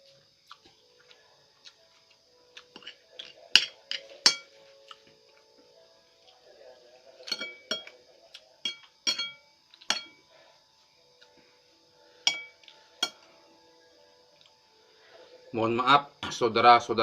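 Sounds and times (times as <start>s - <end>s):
metal cutlery clinking on dish: 2.8s - 4.5s, 7.2s - 8.0s, 8.6s - 10.2s, 12.3s - 13.2s.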